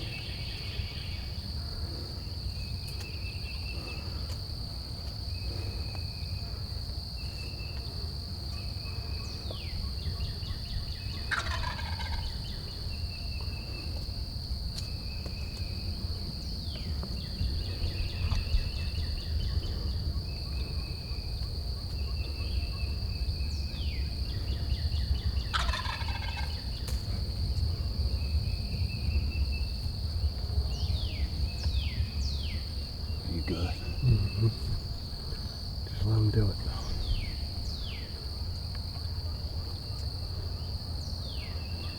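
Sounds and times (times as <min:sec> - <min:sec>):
high insect drone: 0:00.0 - 0:41.9
turkey gobbling: 0:11.3 - 0:12.4, 0:25.5 - 0:26.6.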